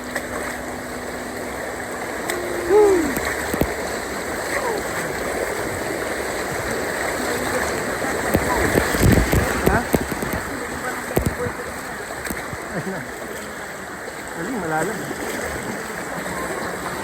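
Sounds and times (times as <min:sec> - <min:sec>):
river rushing through rapids: 0:00.0 - 0:17.0
short falling voice call: 0:02.3 - 0:03.2.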